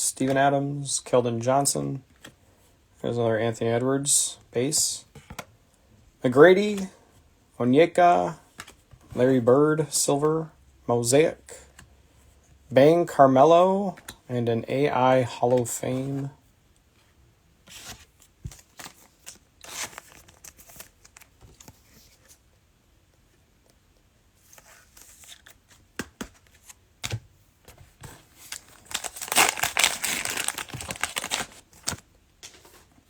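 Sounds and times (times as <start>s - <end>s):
cards clicking and rustling: 24.5s - 32.8s
cellophane wrapper tearing and crinkling: 28.5s - 32.0s.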